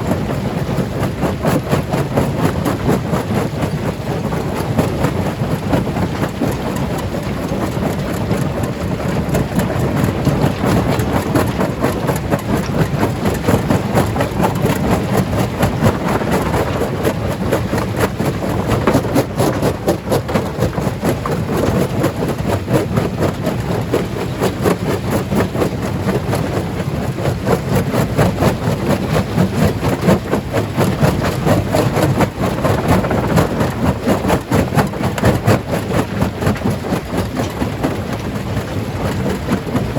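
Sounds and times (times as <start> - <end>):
stone crusher rumbling: 10.0 - 25.0.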